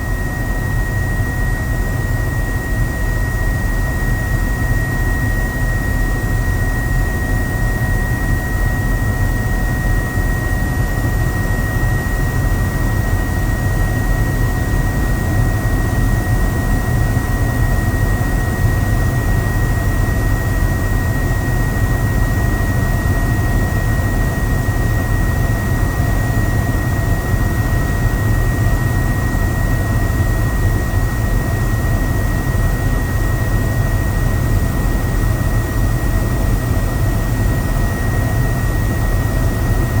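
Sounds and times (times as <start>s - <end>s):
helicopter rotor and engine drone: 0.0s - 40.0s.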